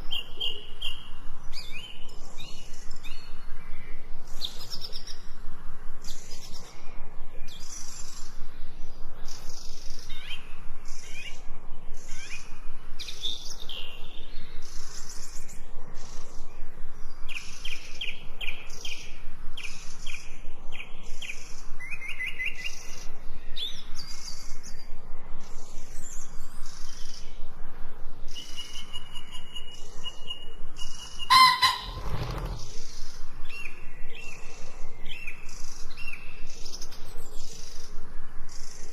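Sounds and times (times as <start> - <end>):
songbirds chirping and trilling: 0.0 - 38.9
louder lower bird call: 31.2 - 32.8.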